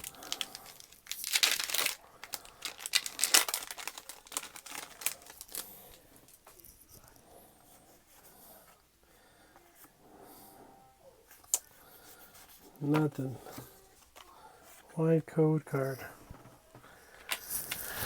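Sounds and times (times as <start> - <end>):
foil wrapper crinkling: 0.0 - 6.0
foil wrapper tearing: 0.0 - 6.0.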